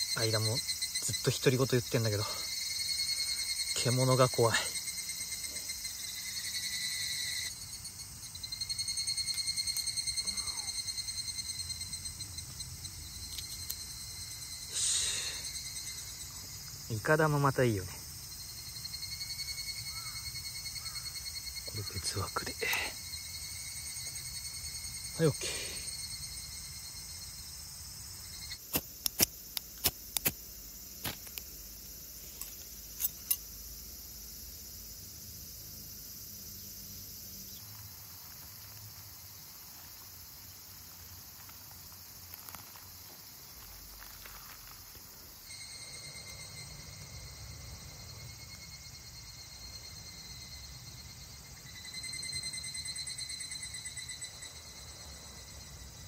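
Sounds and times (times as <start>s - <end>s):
insects trilling: 0.0s - 56.0s
sharp clicks and taps: 28.7s - 30.4s.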